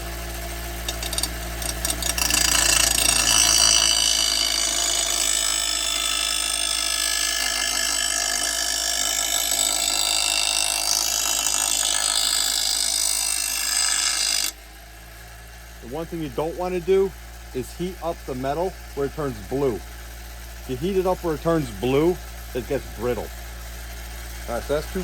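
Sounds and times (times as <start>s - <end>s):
grinder motor running: 0.0s - 25.0s
grinder wheel sharpening blade: 0.7s - 14.6s.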